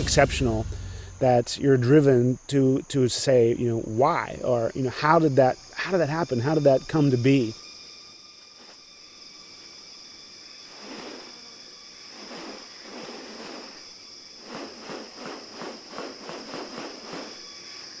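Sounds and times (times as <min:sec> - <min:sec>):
insects droning: 0:00.0 - 0:18.0
rustling noises: 0:12.1 - 0:17.9.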